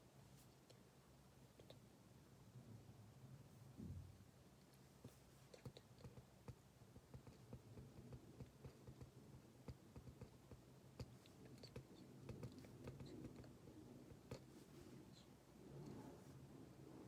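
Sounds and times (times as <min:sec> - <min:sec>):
small clicks and taps: 0:04.6 - 0:13.5.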